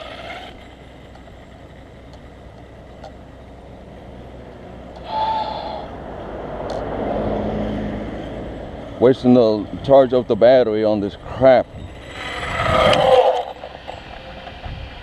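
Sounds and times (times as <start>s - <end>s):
vehicle running: 0.0s - 15.0s
low hum: 11.0s - 15.0s.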